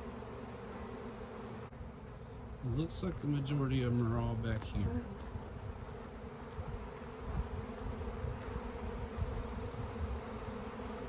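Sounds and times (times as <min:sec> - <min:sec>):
bee swarm buzzing: 0:00.0 - 0:11.0.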